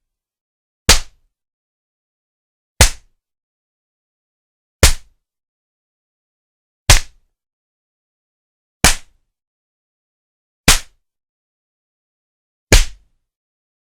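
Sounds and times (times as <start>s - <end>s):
open hand slaps: 0.9s - 1.2s, 2.8s - 3.1s, 4.8s - 5.1s, 6.9s - 7.2s, 8.8s - 9.2s, 10.7s - 11.0s, 12.7s - 13.1s.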